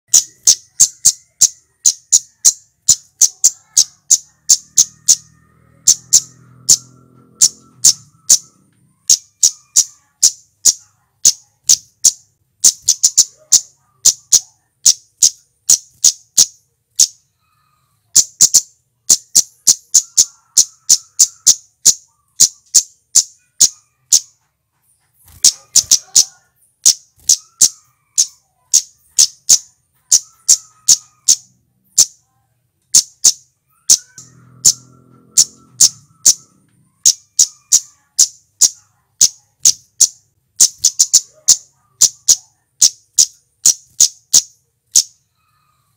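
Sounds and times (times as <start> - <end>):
bird singing sharp high notes: 0.0 - 24.4, 33.0 - 45.2.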